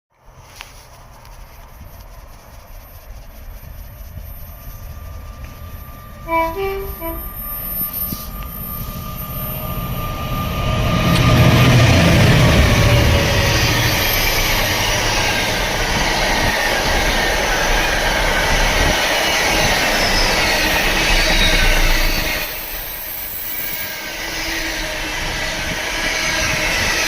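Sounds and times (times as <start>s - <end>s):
steel wheels on rail: 0.3s - 27.0s
high wheel squeal: 0.6s - 27.0s
freight train rolling past: 0.8s - 27.0s.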